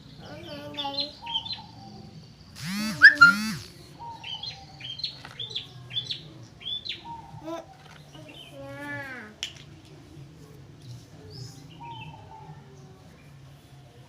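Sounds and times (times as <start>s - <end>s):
small bird chirping: 0.2s - 8.6s
swooping bird calls: 2.6s - 5.1s.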